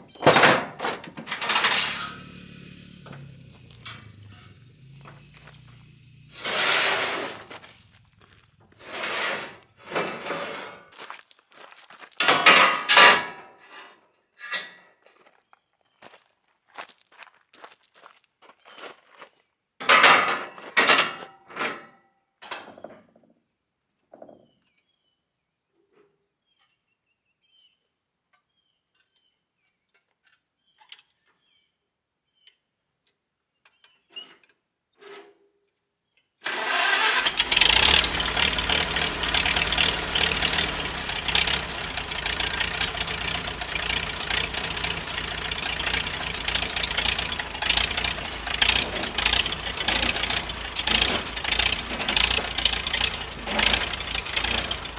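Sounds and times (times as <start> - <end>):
engine running loud: 0.1 - 10.0, 36.5 - 54.9
footsteps: 5.0 - 9.6, 10.9 - 12.3.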